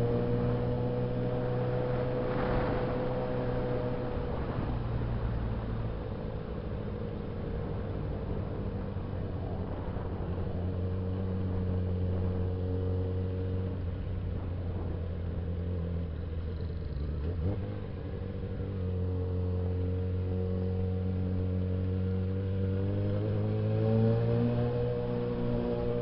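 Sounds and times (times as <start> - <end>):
motorcycle engine running: 0.0 - 23.5.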